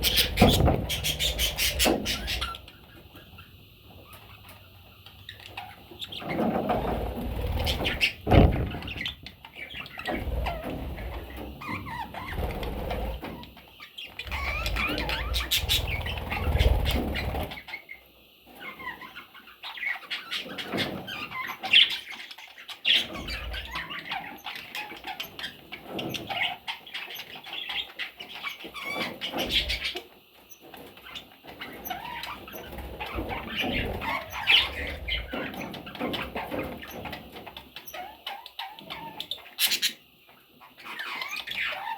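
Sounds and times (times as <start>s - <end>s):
budgerigars chirping: 0.0s - 6.7s, 7.4s - 30.0s, 31.0s - 37.2s, 37.8s - 40.0s, 40.7s - 41.9s
wings flapping: 14.3s - 17.6s.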